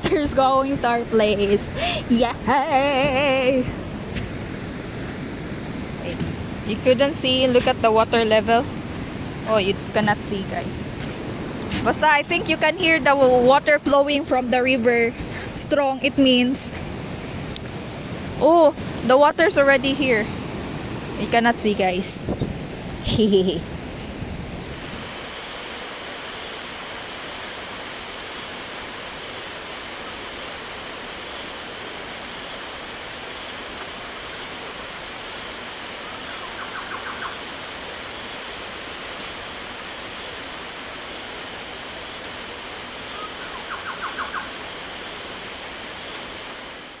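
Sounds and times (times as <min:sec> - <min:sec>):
rain hiss: 0:00.0 - 0:47.0
night insects trilling: 0:00.2 - 0:47.0
river water rushing: 0:00.6 - 0:14.4, 0:16.7 - 0:22.9
rapid rattling calls: 0:36.1 - 0:37.8, 0:42.0 - 0:46.8.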